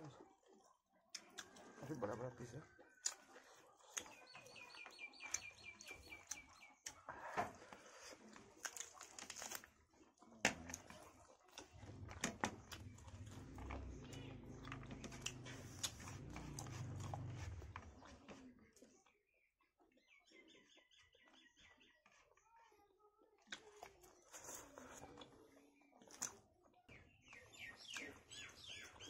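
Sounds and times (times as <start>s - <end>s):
chewing and lip smacks: 0.0s - 18.9s, 23.4s - 29.0s
bird chirping: 3.9s - 7.0s, 19.3s - 22.0s, 26.9s - 29.0s.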